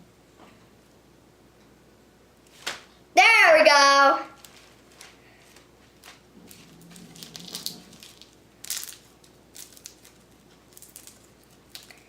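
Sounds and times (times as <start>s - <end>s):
slime crackling and popping: 6.0s - 12.0s.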